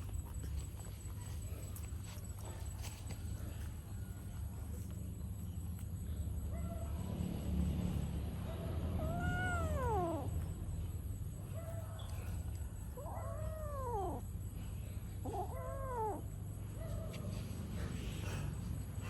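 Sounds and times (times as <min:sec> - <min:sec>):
cat meowing: 0:09.0 - 0:10.4, 0:13.0 - 0:14.2, 0:15.2 - 0:16.3.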